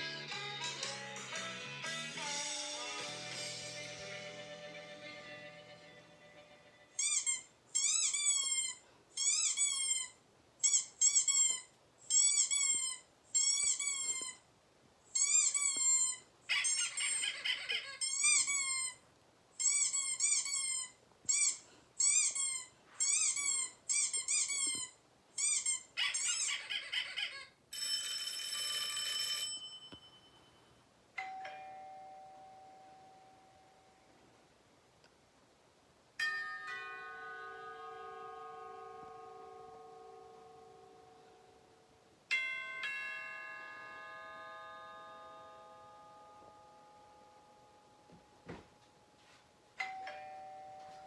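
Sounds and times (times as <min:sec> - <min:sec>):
high-pitched squeaks: 0:07.0 - 0:14.4, 0:15.1 - 0:19.0, 0:19.6 - 0:27.5
ringing chime: 0:27.7 - 0:34.1, 0:36.2 - 0:41.7, 0:42.3 - 0:51.0.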